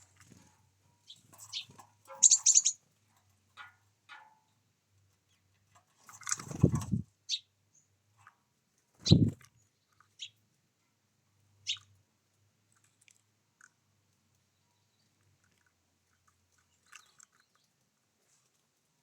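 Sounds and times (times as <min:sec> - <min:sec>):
bird chirps: 0:01.0 - 0:02.8, 0:07.3 - 0:07.9, 0:09.0 - 0:09.4, 0:11.6 - 0:11.9
fluttering wingbeats: 0:01.3 - 0:02.7, 0:06.1 - 0:07.0.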